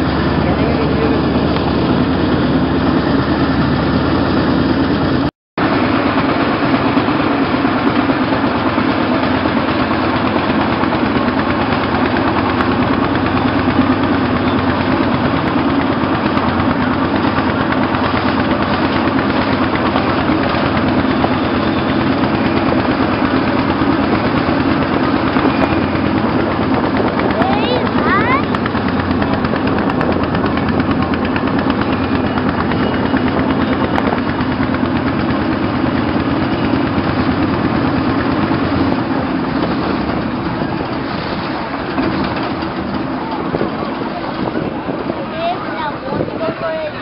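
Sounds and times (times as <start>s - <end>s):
motorboat diesel engine running: 0.0s - 47.0s.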